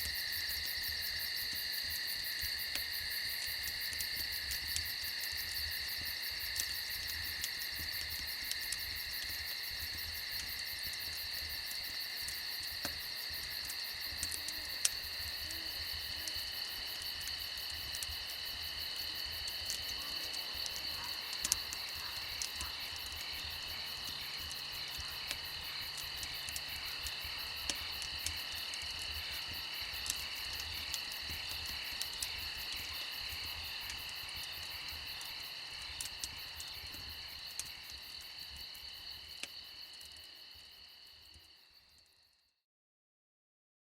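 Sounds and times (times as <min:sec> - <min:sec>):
campfire crackles: 0:00.0 - 0:42.3
crickets and insects chorus: 0:00.0 - 0:42.3.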